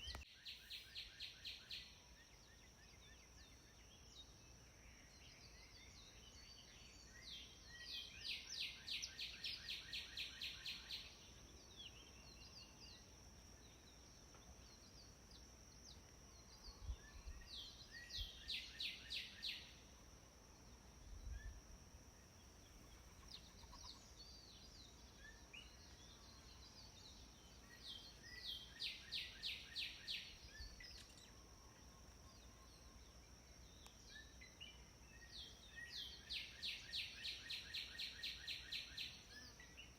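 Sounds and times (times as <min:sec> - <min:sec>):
bird chirps: 0:22.7 - 0:33.1.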